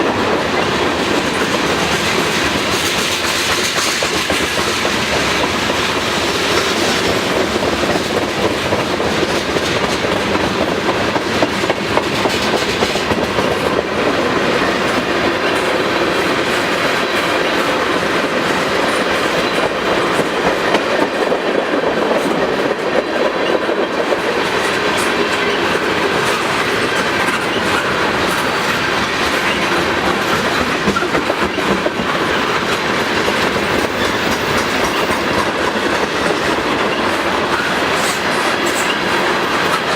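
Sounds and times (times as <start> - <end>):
wheels clattering over rail joints: 14.6 - 39.9.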